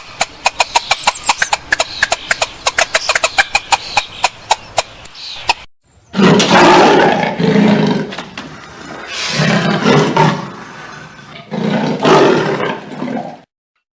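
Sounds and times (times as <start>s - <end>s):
big cat roaring: 6.2s - 13.5s.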